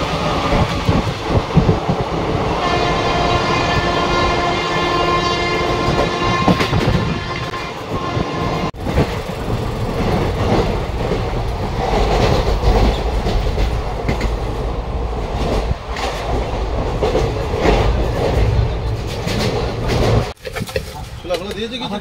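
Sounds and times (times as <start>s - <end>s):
train rumble: 0.0s - 20.4s
train horn: 2.5s - 8.7s
wheels clattering over rails: 8.8s - 21.7s.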